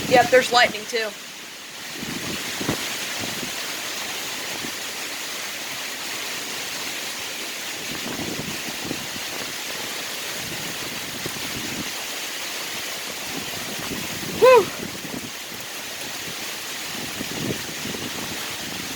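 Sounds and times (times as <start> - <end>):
wind buffeting microphone: 0.0 - 1.0, 1.7 - 3.7, 7.7 - 12.1, 12.7 - 18.9
heavy rain pouring: 0.0 - 18.9.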